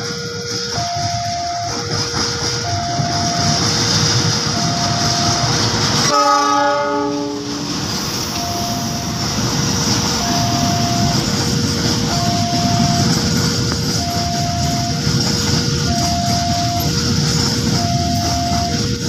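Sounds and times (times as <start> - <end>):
alternating two-note tone: 0.0 - 6.2, 8.3 - 9.5, 10.1 - 15.2, 15.8 - 18.9
wagons clattering over rails: 0.0 - 6.2, 7.6 - 19.0
train horn blast: 0.0 - 9.3
diesel locomotive passing: 0.0 - 19.0.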